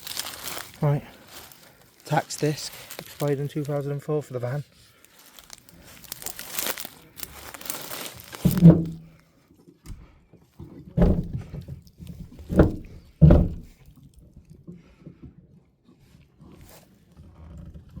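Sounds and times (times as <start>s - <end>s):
scratchy rustling: 0.0s - 3.8s, 4.9s - 9.1s
dull thunks on vehicle door: 8.4s - 9.1s, 11.0s - 11.5s, 12.2s - 13.8s.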